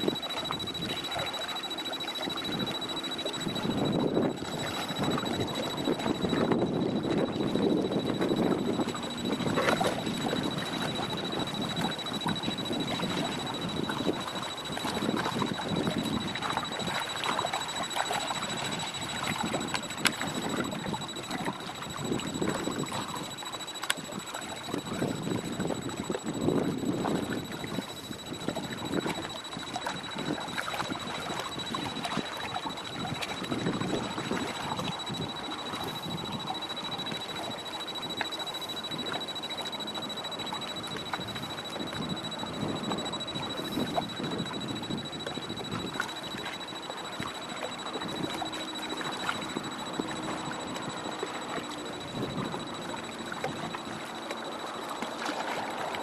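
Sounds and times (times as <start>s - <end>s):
high-pitched whine: 0.0s - 56.0s
water sloshing: 0.0s - 56.0s
wind on microphone: 2.4s - 23.3s, 24.0s - 37.6s, 40.9s - 46.1s.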